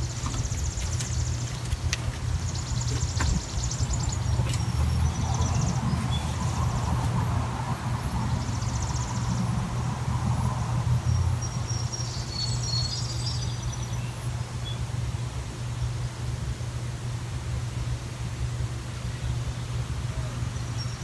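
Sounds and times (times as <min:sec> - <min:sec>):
small birds chirping and trilling: 0:00.0 - 0:09.9, 0:10.5 - 0:14.9, 0:19.3 - 0:21.0
steady low rumble: 0:00.0 - 0:12.1.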